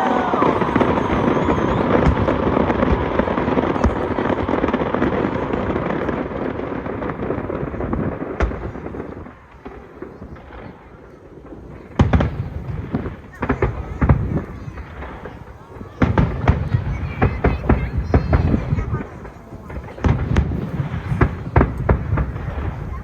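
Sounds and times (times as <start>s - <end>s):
fireworks crackling: 0.0s - 23.0s.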